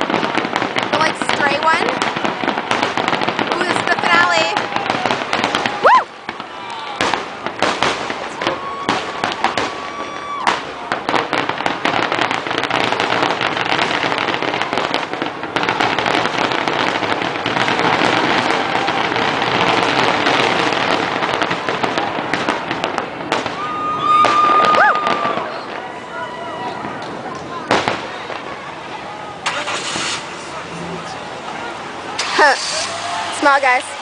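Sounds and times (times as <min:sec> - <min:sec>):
fireworks booms and crackle: 0:00.0 - 0:34.0
high firework whistle: 0:23.5 - 0:26.9, 0:32.2 - 0:33.8.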